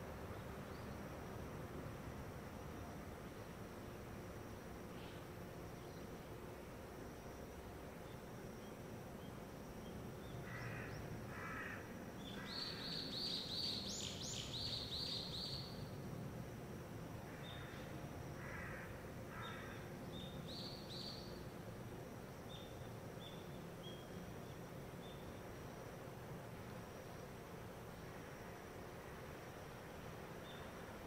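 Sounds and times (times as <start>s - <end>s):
faint background hum: 0.0s - 31.0s
crow cawing: 10.4s - 11.8s, 18.4s - 19.8s.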